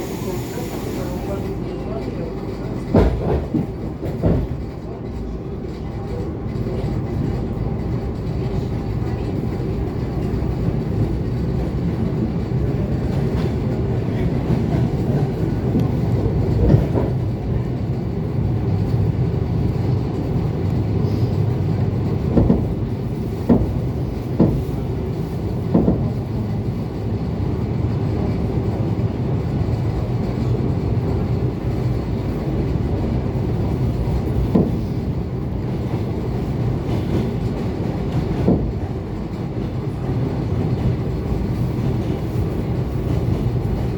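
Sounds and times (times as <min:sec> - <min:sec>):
train wheels rumbling on rail: 0:00.0 - 0:43.9
wheels knocking on rail joints: 0:21.9 - 0:26.3.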